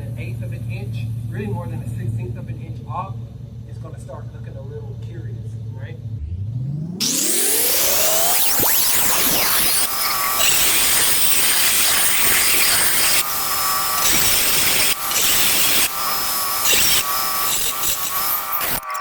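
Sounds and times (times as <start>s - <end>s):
power saw grinding stone tile: 7.0s - 19.0s.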